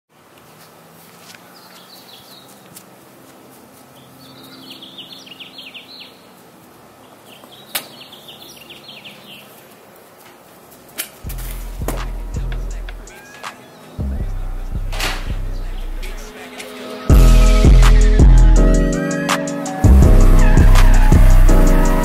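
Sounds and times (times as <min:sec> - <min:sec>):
bird chirping: 0:01.4 - 0:02.7, 0:03.9 - 0:06.4, 0:07.0 - 0:09.8, 0:11.2 - 0:17.0
loud deep low tone: 0:11.3 - 0:13.1, 0:14.0 - 0:16.3, 0:17.1 - 0:18.9, 0:19.9 - 0:22.0.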